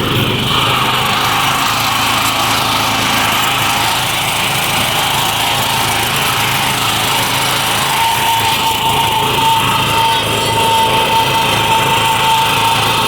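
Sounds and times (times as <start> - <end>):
small tractor engine running: 0.0 - 13.0.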